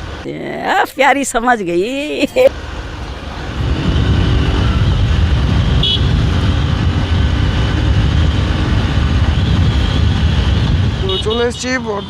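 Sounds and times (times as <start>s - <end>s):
motorcycle engine rumble: 2.4s - 12.0s
wind on microphone: 3.2s - 11.4s.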